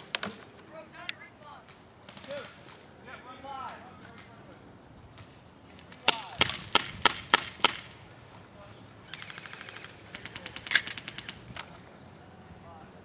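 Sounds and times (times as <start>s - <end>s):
airsoft guns firing: 2.0s - 2.8s, 5.9s - 8.0s, 9.1s - 11.7s.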